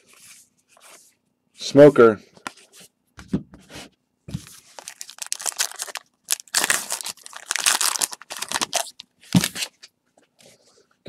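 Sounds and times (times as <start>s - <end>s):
wrapper tearing and crinkling: 4.7s - 9.7s.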